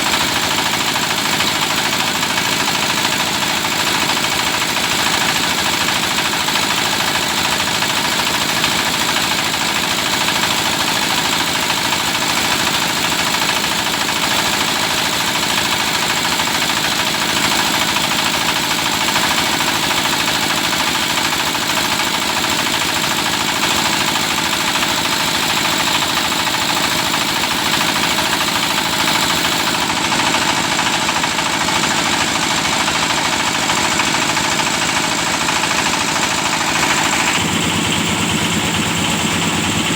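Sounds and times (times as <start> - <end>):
drilling rig engine running: 14.9 - 39.9.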